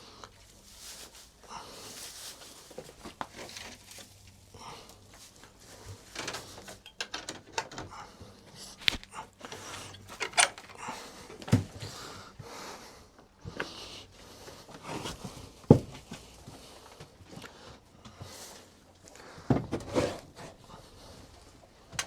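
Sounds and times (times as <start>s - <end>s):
straw rustling and scraping: 0.3s - 6.8s.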